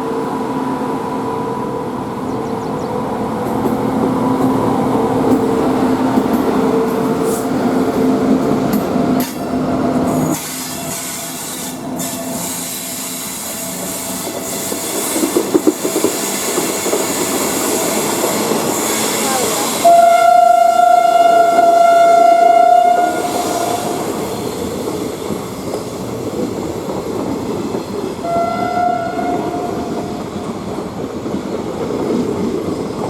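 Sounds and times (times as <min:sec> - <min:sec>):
train wheels rumbling on rail: 0:00.0 - 0:33.0
wheels clicking over rail joints: 0:11.4 - 0:19.8.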